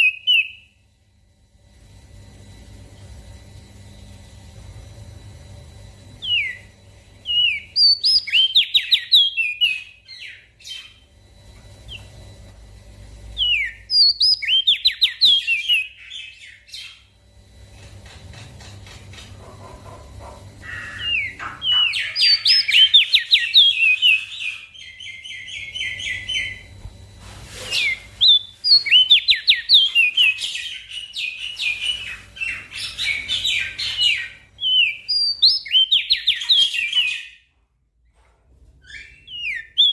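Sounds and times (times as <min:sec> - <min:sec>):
bird singing rapid chirps: 0:06.2 - 0:11.1, 0:13.4 - 0:17.1, 0:20.6 - 0:26.7, 0:27.8 - 0:37.4, 0:39.0 - 0:39.9.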